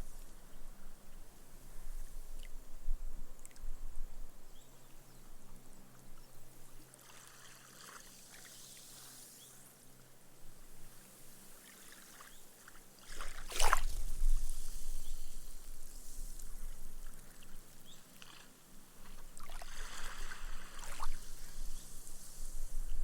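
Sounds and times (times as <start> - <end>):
gentle waves lapping on sand: 6.8 - 10.1, 10.9 - 22.6.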